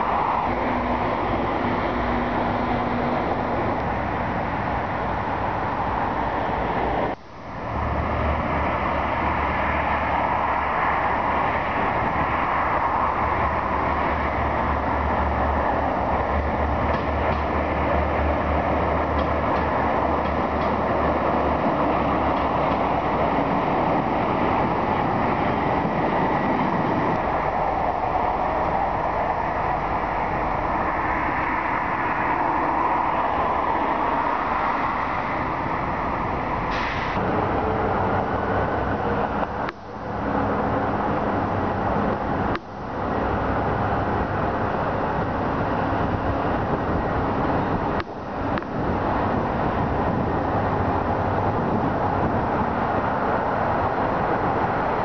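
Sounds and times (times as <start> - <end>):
diesel train engine hum: 0.0 - 55.0
outdoor city noise: 0.0 - 55.0
brief hiss: 36.7 - 37.2.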